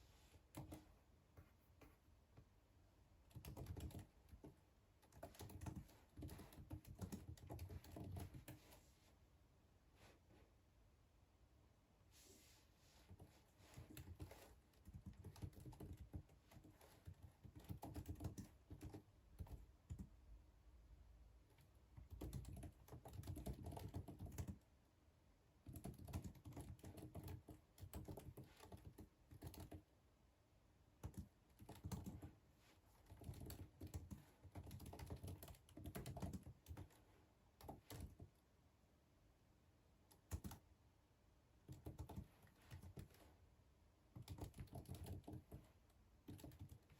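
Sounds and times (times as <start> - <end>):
typing on computer keyboard: 0.5 - 0.9, 3.3 - 8.6, 13.2 - 20.2, 21.5 - 24.6, 25.6 - 29.9, 31.0 - 32.4, 33.0 - 37.0, 37.6 - 38.3, 40.1 - 40.6, 41.6 - 43.3, 44.2 - 46.9.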